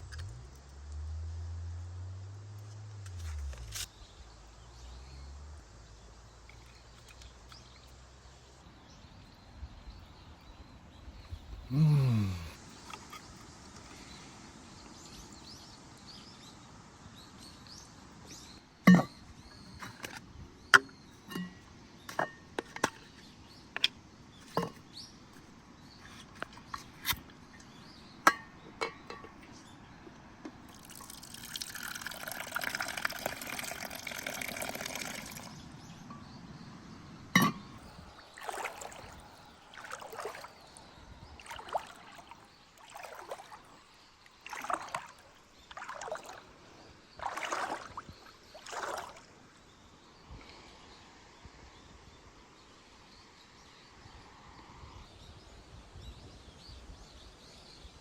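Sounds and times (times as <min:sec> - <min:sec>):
cookware clinking and knocking: 0:28.3 - 0:29.4, 0:37.4 - 0:37.7
liquid pouring: 0:30.7 - 0:35.6, 0:38.4 - 0:39.2.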